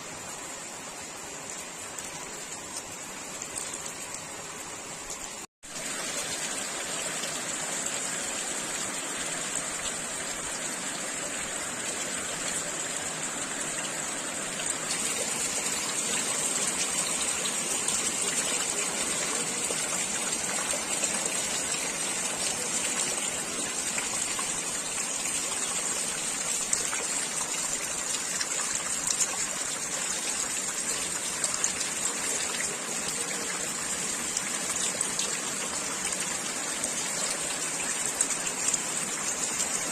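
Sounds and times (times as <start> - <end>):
heavy rain falling: 0.1 - 39.9
running and pouring water: 1.2 - 39.9.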